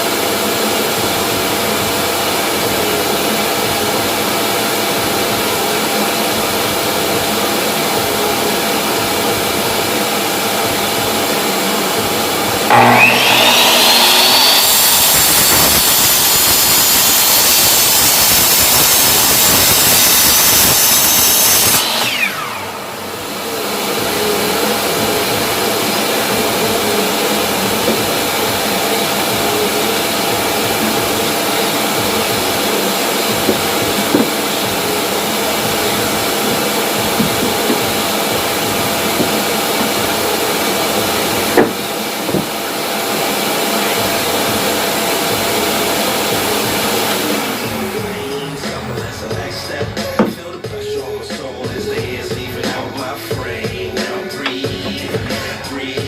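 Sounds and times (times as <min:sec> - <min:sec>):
vacuum dust collector: 0:00.0 - 0:48.6
saw motor whining: 0:07.1 - 0:48.6.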